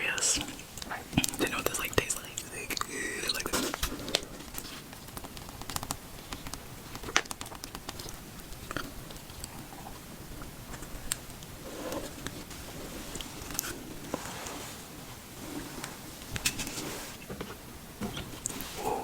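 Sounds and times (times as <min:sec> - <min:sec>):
chewing wet clicks and squishes: 0:00.4 - 0:12.5.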